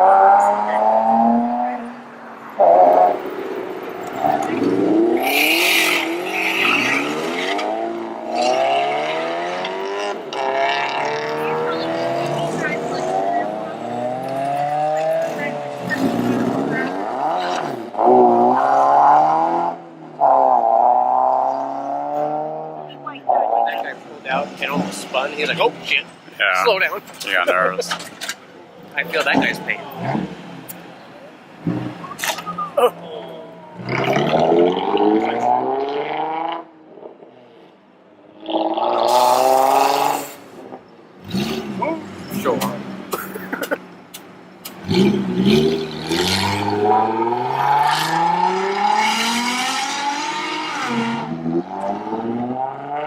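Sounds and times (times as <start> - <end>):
car engine revving hard: 4.2 - 23.8, 33.8 - 36.7, 38.4 - 40.5, 41.2 - 43.2, 44.6 - 53.0
engine revving with exhaust rasp: 41.2 - 43.7, 44.6 - 53.0.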